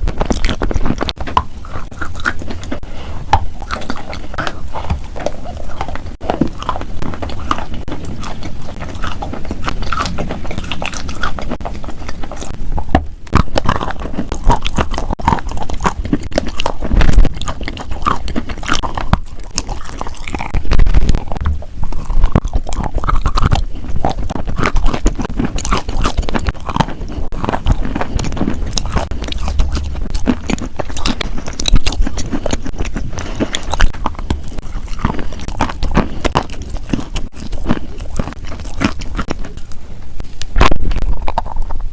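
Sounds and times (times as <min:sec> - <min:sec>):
crunchy food being chewed: 0:00.0 - 0:41.9.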